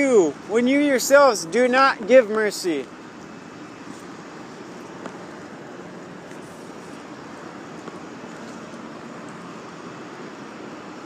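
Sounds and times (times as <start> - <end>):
hiss of passing vehicles: 0.0 - 11.0.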